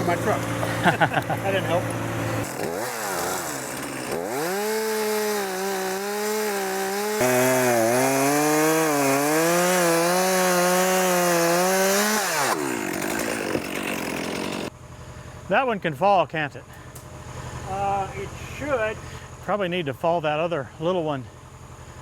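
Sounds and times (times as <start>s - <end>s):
chainsaw cutting wood: 0.0s - 14.8s.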